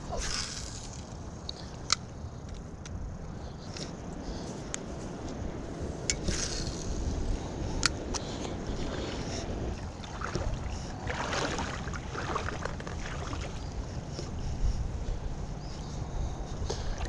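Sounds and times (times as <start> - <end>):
wind buffeting microphone: 0.0 - 17.0
water swishing: 8.6 - 13.7.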